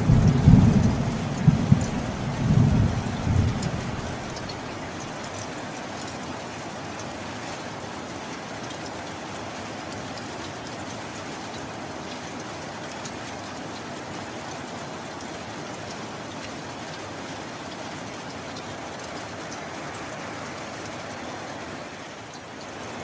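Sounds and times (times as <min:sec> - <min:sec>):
heavy rain hissing: 0:00.0 - 0:05.2
raindrop ticks: 0:00.0 - 0:07.1, 0:08.0 - 0:21.1, 0:22.2 - 0:23.0.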